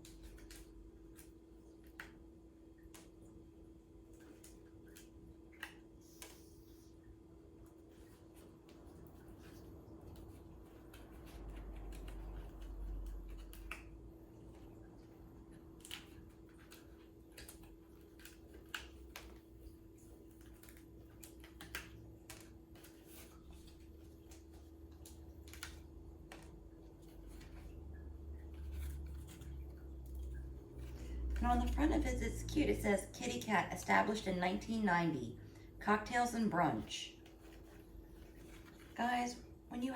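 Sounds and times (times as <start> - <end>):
cardboard clicks and snaps: 15.7 - 27.5.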